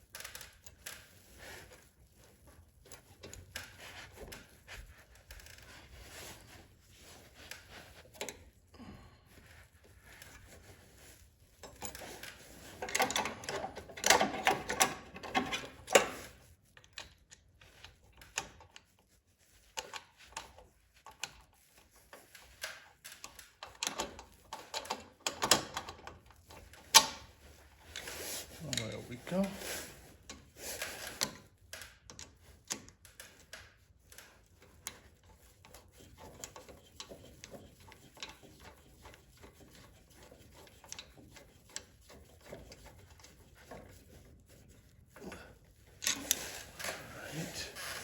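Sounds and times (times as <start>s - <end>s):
hand tools clicking and clattering: 34.7s - 44.2s.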